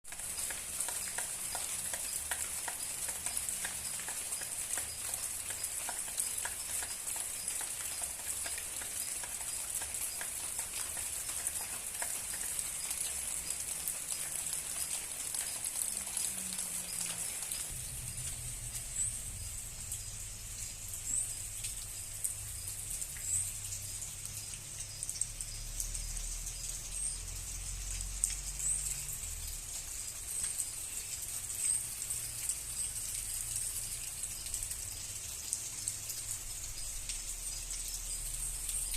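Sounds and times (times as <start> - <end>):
rain pattering: 0.0 - 38.9
low steady rumble: 17.7 - 23.9.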